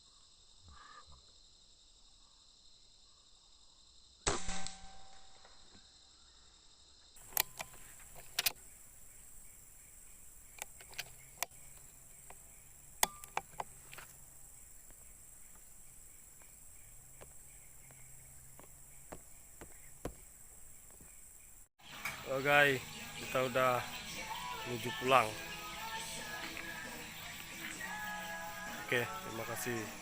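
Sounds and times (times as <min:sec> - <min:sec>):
high insect drone: 0:05.5 - 0:30.0
sharp clicks and knocks: 0:07.2 - 0:08.6, 0:10.5 - 0:12.4, 0:13.0 - 0:14.2.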